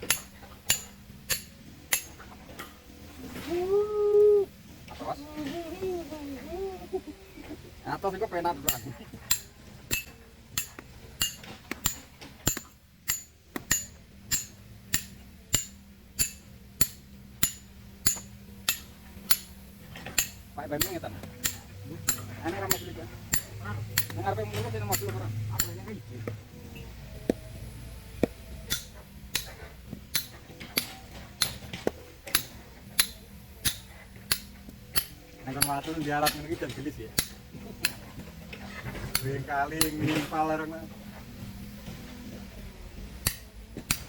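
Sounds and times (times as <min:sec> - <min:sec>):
hammer striking steel chisel: 0:00.0 - 0:02.2, 0:08.6 - 0:26.4, 0:28.2 - 0:36.5, 0:37.2 - 0:38.3, 0:38.9 - 0:40.1, 0:43.2 - 0:44.0.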